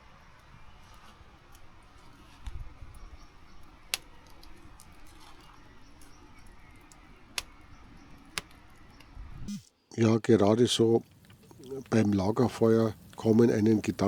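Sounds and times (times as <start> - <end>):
campfire wood popping: 0.0 - 9.6, 10.3 - 14.0
brook rushing: 10.5 - 14.0.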